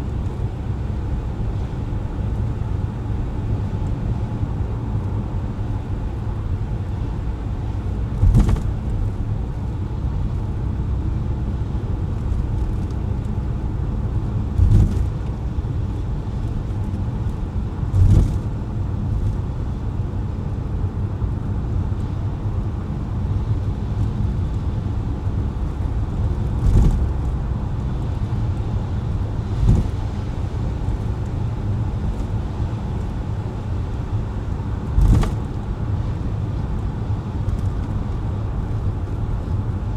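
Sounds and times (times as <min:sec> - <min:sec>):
tyre and road noise: 0:00.0 - 0:39.9
brief thumps: 0:08.2 - 0:08.8.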